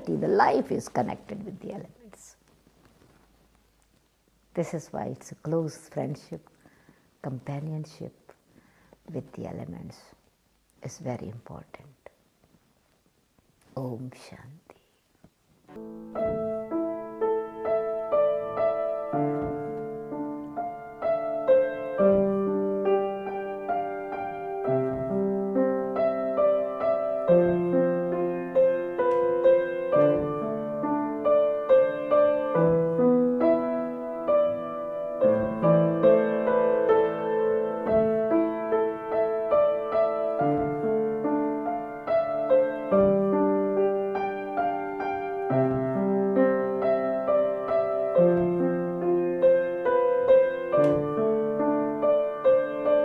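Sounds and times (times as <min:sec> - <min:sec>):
gentle solo piano: 0:15.7 - 0:53.0.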